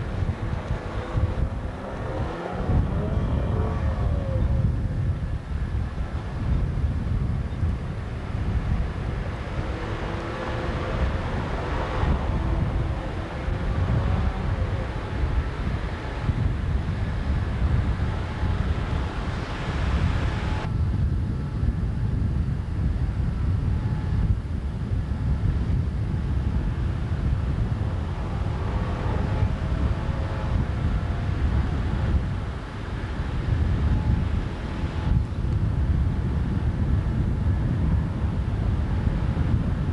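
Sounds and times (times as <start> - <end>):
boat engine running: 0.0 - 20.7, 25.1 - 39.9
wind buffeting microphone: 0.0 - 39.9.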